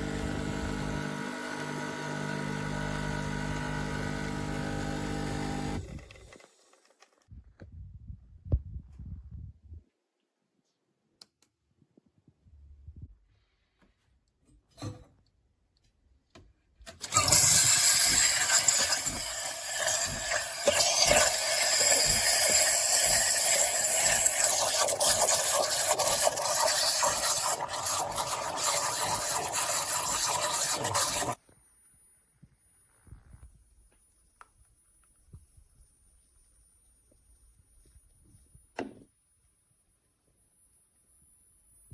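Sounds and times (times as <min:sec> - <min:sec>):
espresso machine hissing: 0:00.0 - 0:06.0, 0:17.0 - 0:31.4.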